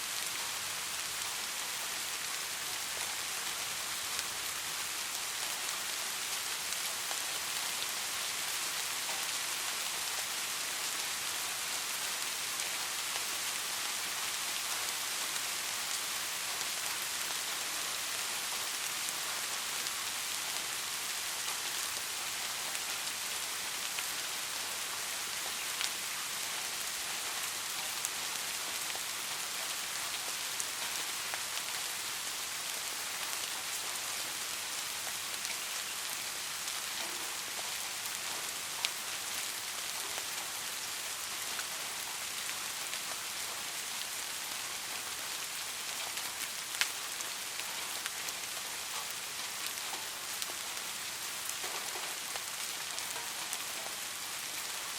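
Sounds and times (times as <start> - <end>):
steady rain hiss: 0.0 - 54.9.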